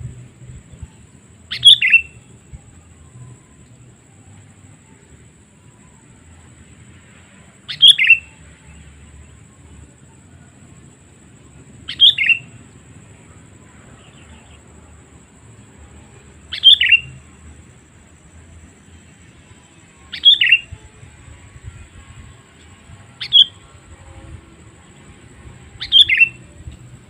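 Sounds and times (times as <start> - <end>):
bulbul calling: 1.5 - 2.3, 7.7 - 8.3, 11.9 - 12.6, 16.5 - 17.2, 20.1 - 20.8, 23.2 - 23.6, 25.8 - 26.5.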